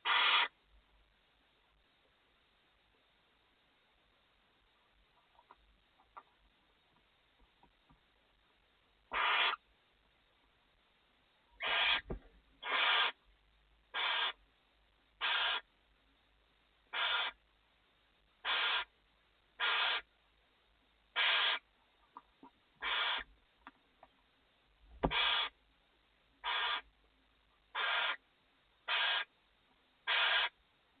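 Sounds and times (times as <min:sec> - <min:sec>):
owl hissing snore-calls: 0:00.0 - 0:00.6, 0:09.1 - 0:09.6, 0:11.6 - 0:13.2, 0:13.9 - 0:14.4, 0:15.2 - 0:15.7, 0:16.9 - 0:17.4, 0:18.4 - 0:18.9, 0:19.6 - 0:20.1, 0:21.1 - 0:21.7, 0:22.8 - 0:23.3, 0:25.1 - 0:25.6, 0:26.4 - 0:26.9, 0:27.7 - 0:28.2, 0:28.8 - 0:29.3, 0:30.0 - 0:30.6.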